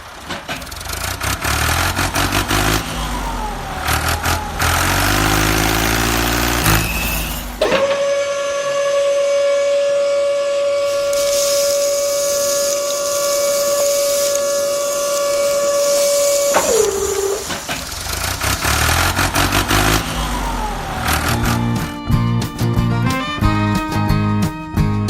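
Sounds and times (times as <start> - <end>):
hiss: 0.1 - 21.9
long steady whistle: 2.5 - 22.0.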